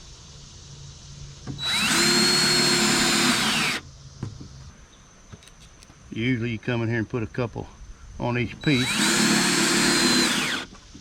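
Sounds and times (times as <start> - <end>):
power drill driving a screw: 1.6 - 3.8, 8.6 - 10.7.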